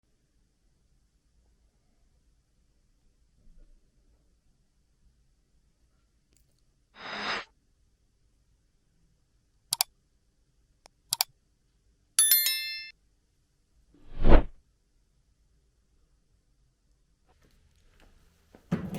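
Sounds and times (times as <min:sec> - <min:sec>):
short scrape: 0:07.0 - 0:07.5, 0:14.0 - 0:14.6
bright metallic ring: 0:12.2 - 0:12.9.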